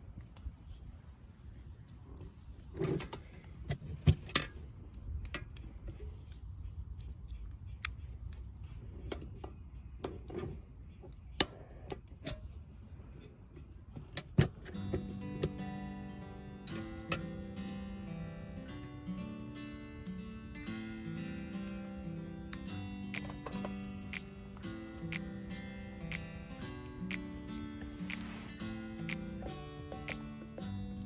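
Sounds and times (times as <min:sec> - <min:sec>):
sharp clicks and taps: 0:22.5 - 0:30.8.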